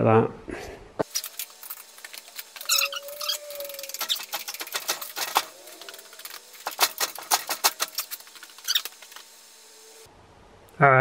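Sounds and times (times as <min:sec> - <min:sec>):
ratchet strap clicking: 0:03.8 - 0:09.1.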